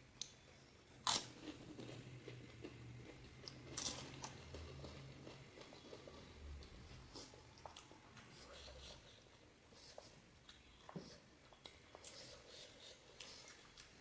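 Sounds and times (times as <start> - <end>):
crunching and chewing food: 0.2 - 14.0.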